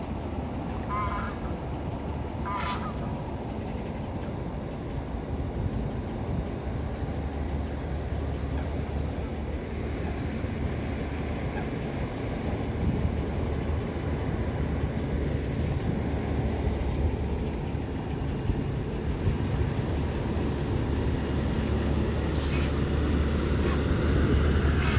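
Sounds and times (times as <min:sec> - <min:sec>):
wind buffeting microphone: 0:05.4 - 0:24.9.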